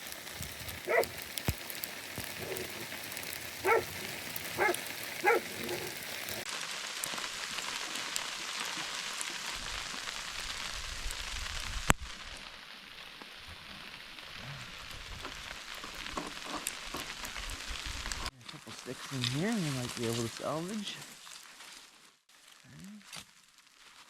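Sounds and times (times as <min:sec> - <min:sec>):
freezing rain pattering: 0:00.0 - 0:24.0
dog barking: 0:00.8 - 0:01.2, 0:03.6 - 0:06.0.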